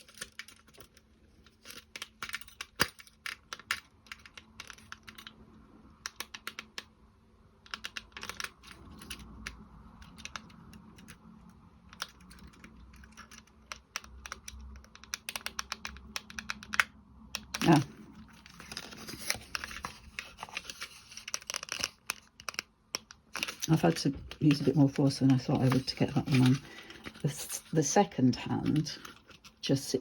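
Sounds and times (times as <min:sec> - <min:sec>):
wooden clock parts clicking: 0:00.0 - 0:05.3.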